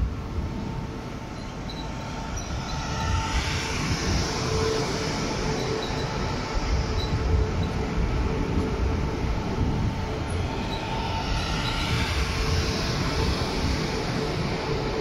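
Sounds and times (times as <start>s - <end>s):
faint hum: 0.0s - 15.0s
train wheels rumbling on rail: 0.0s - 15.0s
high wheel squeaks: 1.3s - 7.9s.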